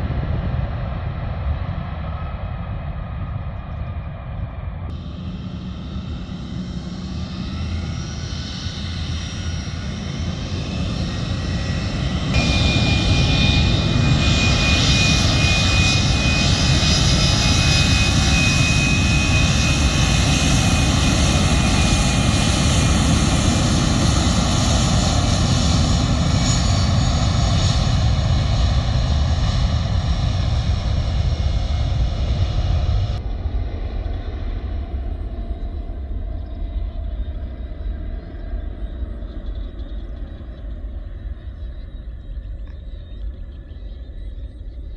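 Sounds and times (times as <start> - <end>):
jet engines roaring: 4.3 - 44.9
high whining tones: 4.9 - 27.3.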